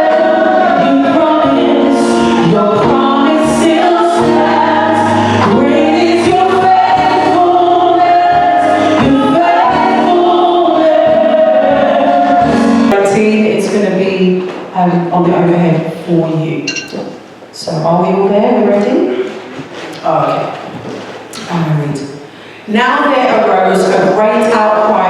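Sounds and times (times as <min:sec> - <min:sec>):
group of voices singing: 0:00.0 - 0:13.0
gospel worship song: 0:00.0 - 0:15.8.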